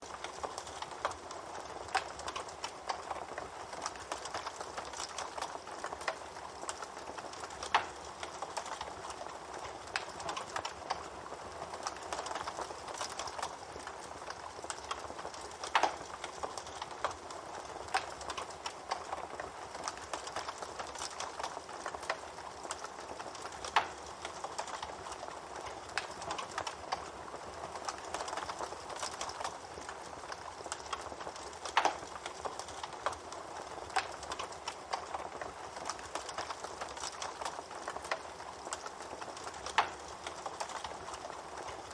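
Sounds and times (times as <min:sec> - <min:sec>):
campfire crackling: 0:00.0 - 0:41.9
fire popping: 0:00.0 - 0:41.9.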